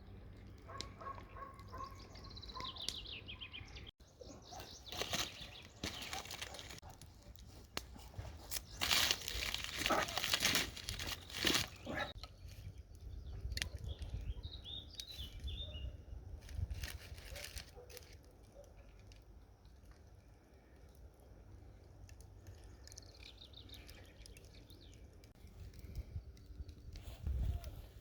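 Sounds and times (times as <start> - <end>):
bird chirping: 0.8 - 6.9
crinkling and rustling: 4.5 - 12.6, 16.4 - 20.0.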